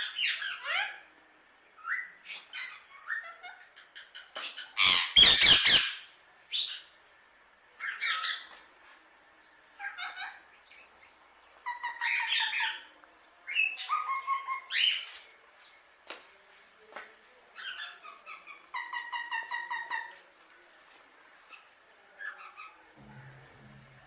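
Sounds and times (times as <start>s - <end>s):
parakeet squawking and chattering: 0.0s - 1.1s, 1.8s - 6.9s, 9.8s - 10.5s, 11.6s - 12.9s, 17.6s - 20.1s.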